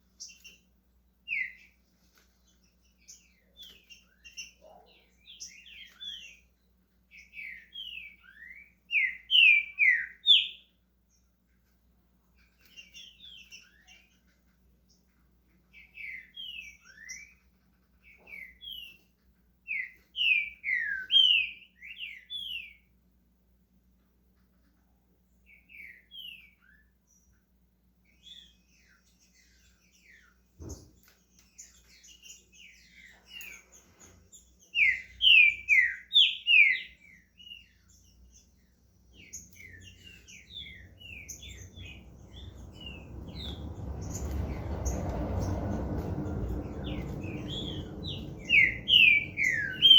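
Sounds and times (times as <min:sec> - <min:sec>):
bird singing whistled notes: 0:01.3 - 0:01.8, 0:07.1 - 0:10.7, 0:15.7 - 0:17.4, 0:19.7 - 0:22.9, 0:25.5 - 0:27.4, 0:28.0 - 0:30.4, 0:34.3 - 0:45.7, 0:46.5 - 0:49.9
low rushing noise: 0:41.6 - 0:49.9.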